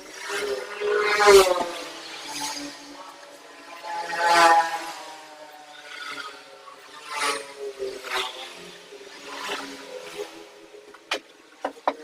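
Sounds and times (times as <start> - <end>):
knocks on wood: 11.1 - 12.0.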